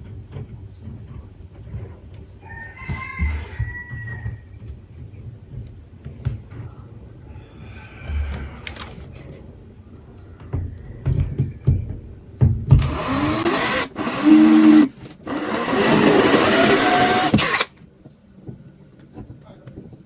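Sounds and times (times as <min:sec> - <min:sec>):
electric power tool running: 0:12.7 - 0:17.7.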